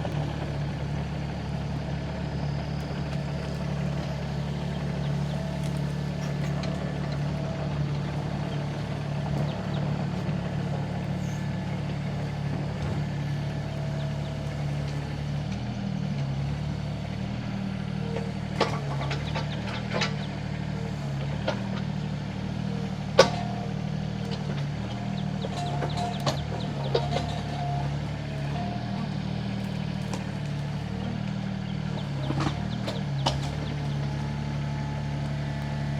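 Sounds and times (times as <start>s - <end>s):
excavator diesel engine running: 0.0s - 35.9s
sharp knocks and clunks: 31.9s - 34.1s.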